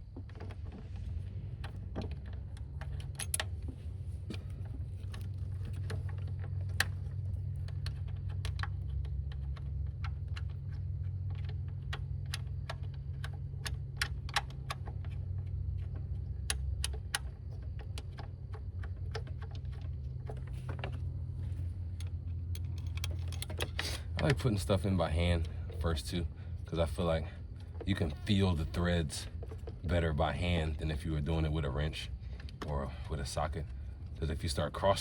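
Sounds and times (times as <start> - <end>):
low hum: 0.0 - 35.0
metal parts clicking and tapping: 1.6 - 26.0.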